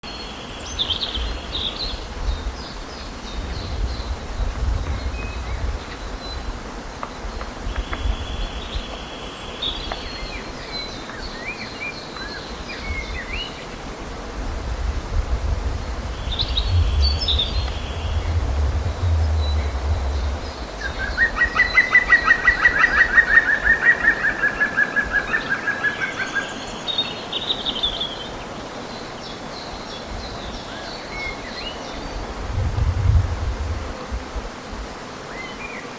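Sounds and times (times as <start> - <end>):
low rumble: 14.5 - 21.3, 32.3 - 34.4.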